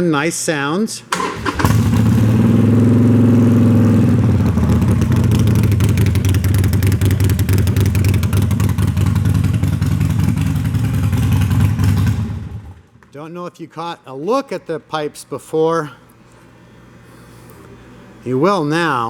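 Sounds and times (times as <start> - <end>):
motorcycle engine idling: 1.3 - 13.0.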